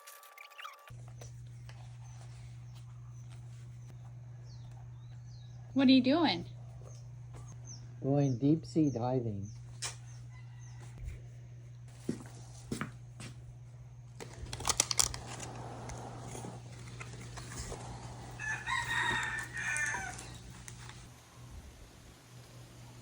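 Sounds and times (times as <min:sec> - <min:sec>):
steady low hum: 0:00.9 - 0:23.0
rooster crowing: 0:10.1 - 0:11.2, 0:17.7 - 0:20.6.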